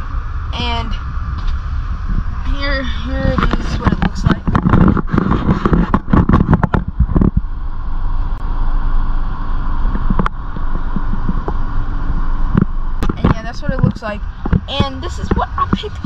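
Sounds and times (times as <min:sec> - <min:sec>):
car engine idling: 0:06.0 - 0:16.0.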